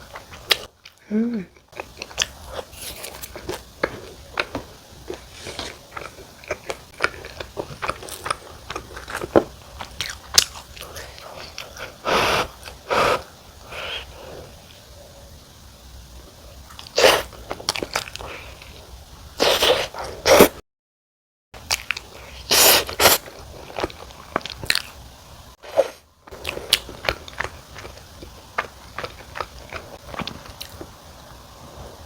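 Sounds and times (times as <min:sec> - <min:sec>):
wet chewing: 0:01.6 - 0:14.0, 0:25.7 - 0:31.0.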